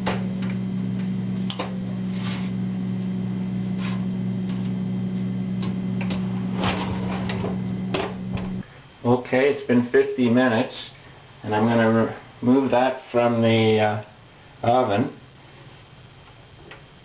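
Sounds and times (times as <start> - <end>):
toaster oven humming: 0.0 - 8.6.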